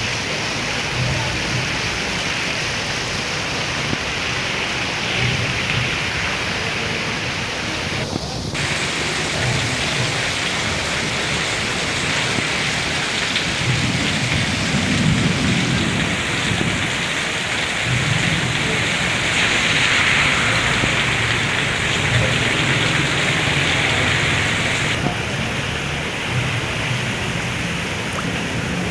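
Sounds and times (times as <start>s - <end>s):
heavy rain pouring: 0.0s - 28.9s
low rumble: 17.9s - 25.0s.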